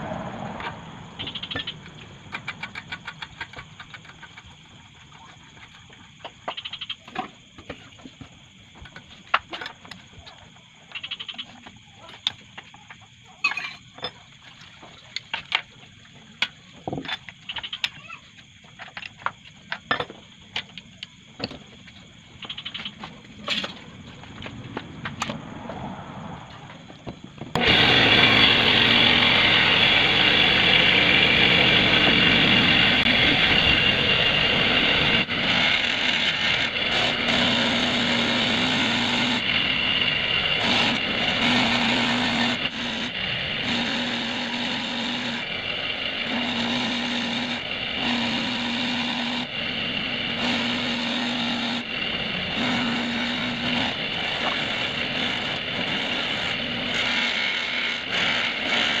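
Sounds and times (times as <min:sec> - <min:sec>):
low hum: 0:00.0 - 0:04.0, 0:23.1 - 0:58.6
power tool motor running: 0:27.5 - 0:59.0.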